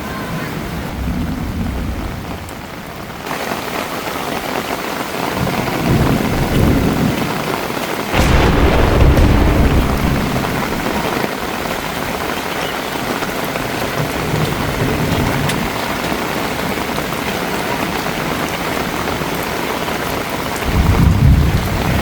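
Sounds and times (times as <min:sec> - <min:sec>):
rain hiss: 0:00.6 - 0:22.0
thunder rumble: 0:08.2 - 0:11.3.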